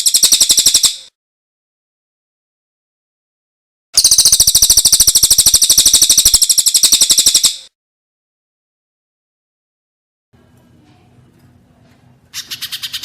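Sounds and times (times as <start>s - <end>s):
songbird trilling: 4.0s - 7.7s, 12.4s - 13.0s.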